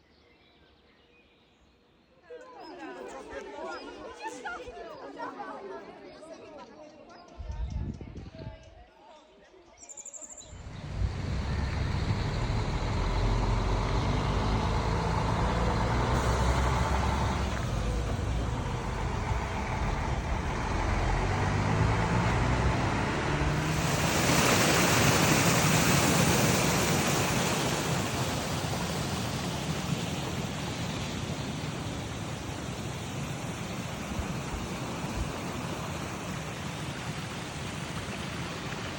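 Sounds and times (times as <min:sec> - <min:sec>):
river water flowing over stones: 0:10.6 - 0:38.9.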